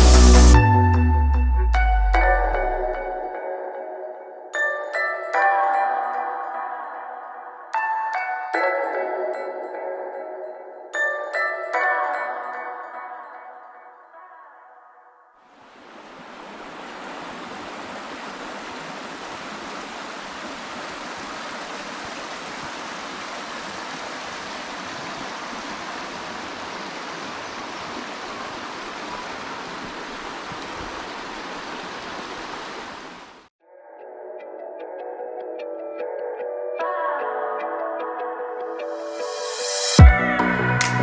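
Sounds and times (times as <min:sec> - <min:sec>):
rush of flowing water: 0:15.5 - 0:33.5.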